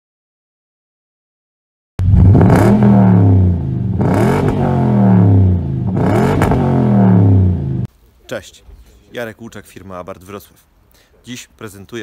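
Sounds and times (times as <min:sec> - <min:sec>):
engine revving: 0:02.0 - 0:07.9.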